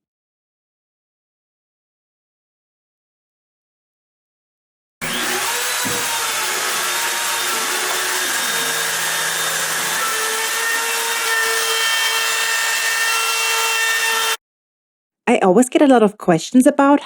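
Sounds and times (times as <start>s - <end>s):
bit cutting hardwood: 5.0s - 14.4s
router spindle whine: 5.0s - 14.4s.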